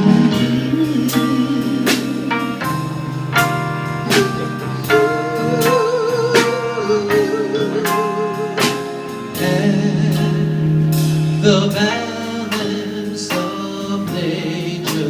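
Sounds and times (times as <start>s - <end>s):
live band playing a slow ballad: 0.0s - 15.0s.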